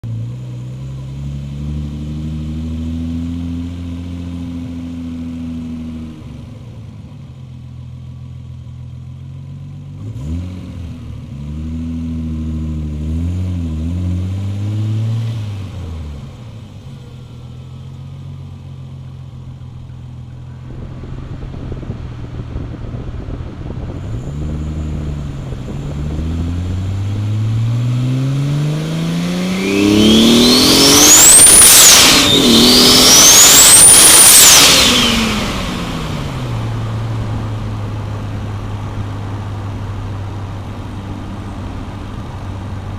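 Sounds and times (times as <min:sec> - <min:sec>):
turbocharged car engine revving: 0:10.0 - 0:42.9.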